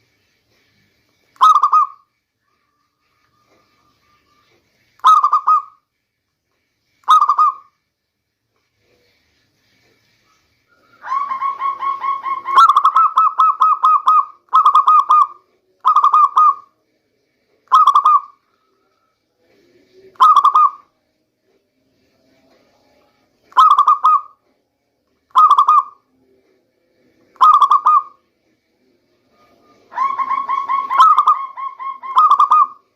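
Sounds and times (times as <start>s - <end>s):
dove cooing: 1.4s - 2.0s, 5.0s - 5.8s, 7.0s - 7.7s, 10.8s - 16.7s, 17.7s - 18.4s, 20.2s - 20.8s, 23.5s - 24.4s, 25.3s - 26.0s, 27.4s - 28.2s, 29.4s - 32.9s.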